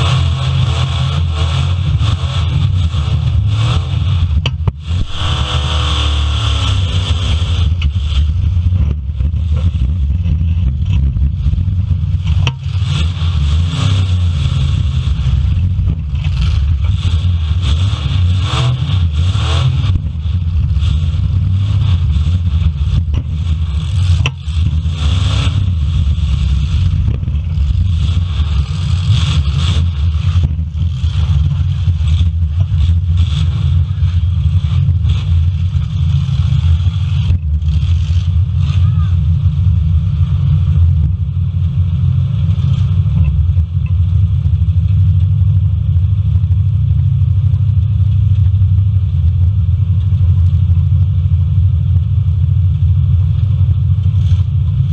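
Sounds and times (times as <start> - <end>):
car engines revving: 0.0 - 54.9.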